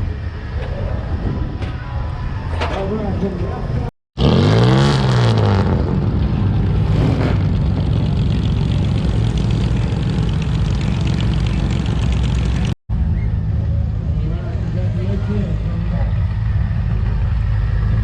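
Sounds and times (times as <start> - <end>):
engine revving and humming: 4.2 - 18.0.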